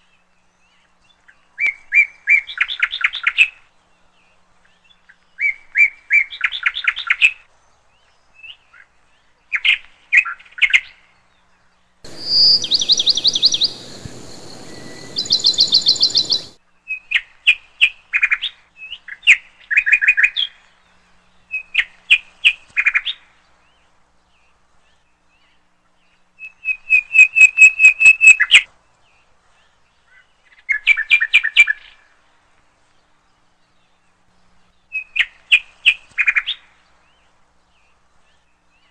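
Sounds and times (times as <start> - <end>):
songbird chirping and trilling: 10.4 - 17.4, 22.9 - 32.0.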